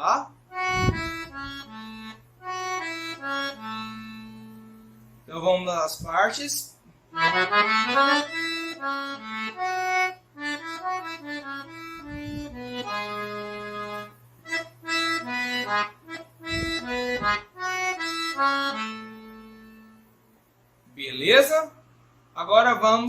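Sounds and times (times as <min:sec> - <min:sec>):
low bass notes: 0:00.5 - 0:04.6, 0:07.2 - 0:19.3
accordion melody: 0:00.5 - 0:05.3, 0:07.1 - 0:20.3.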